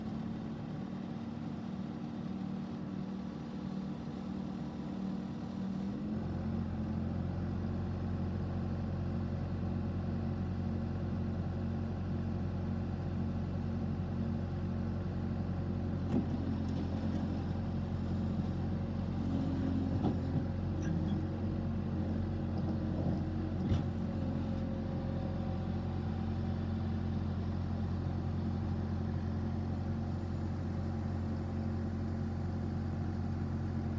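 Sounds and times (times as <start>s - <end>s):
diesel engine running: 14.4s - 33.9s.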